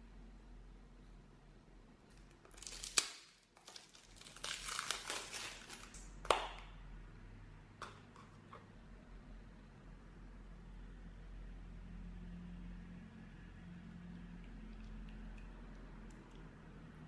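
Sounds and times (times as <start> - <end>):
plastic crinkling and rustling: 2.1 - 6.6.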